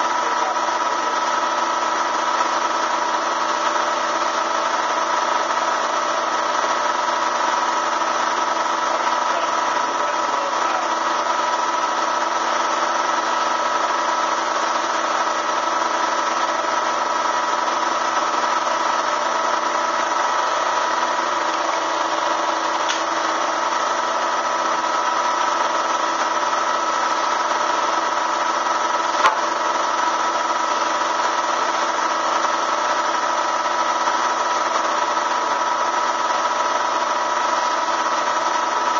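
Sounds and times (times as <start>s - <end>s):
electric motor humming: 0.0s - 38.9s
sharp click: 22.8s - 23.1s.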